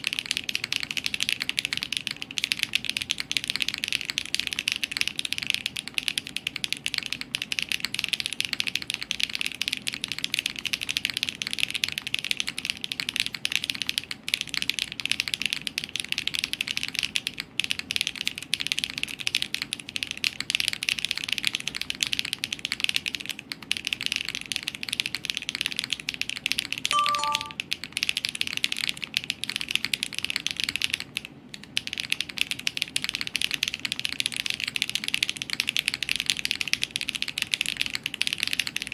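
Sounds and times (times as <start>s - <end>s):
mechanical keyboard typing: 0.0s - 38.9s
falling three-note chime: 26.9s - 27.6s.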